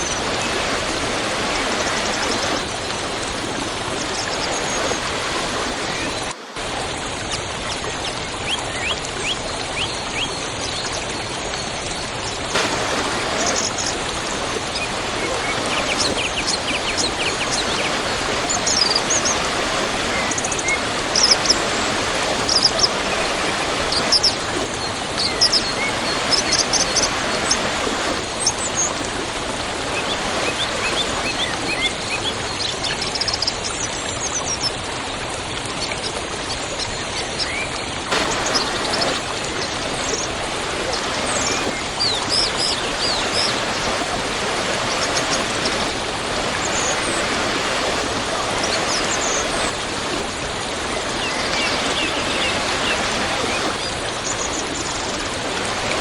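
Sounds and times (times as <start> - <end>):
waterfall rushing: 0.0 - 11.2, 11.9 - 33.4, 37.4 - 56.0
small birds chirping: 8.4 - 29.2, 29.9 - 33.8, 37.4 - 54.7.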